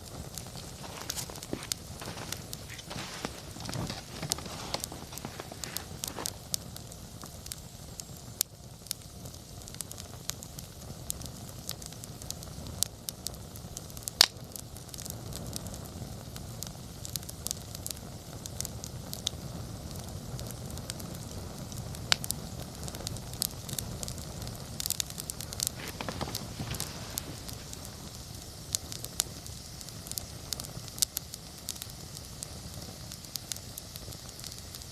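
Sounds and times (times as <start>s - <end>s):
campfire flame rushing: 0.0s - 34.9s
fire crackles and pops: 0.0s - 34.9s.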